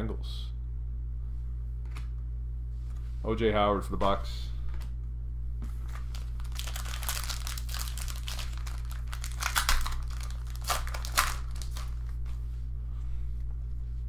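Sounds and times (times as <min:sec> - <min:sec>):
low electrical hum: 0:00.0 - 0:14.0
foil wrapper crinkling and tearing: 0:05.8 - 0:12.2.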